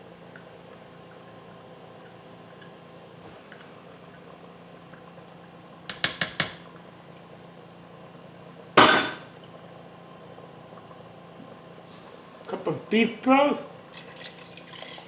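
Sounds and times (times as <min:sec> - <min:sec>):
utensils tapping a cooking pot: 0:05.9 - 0:06.6.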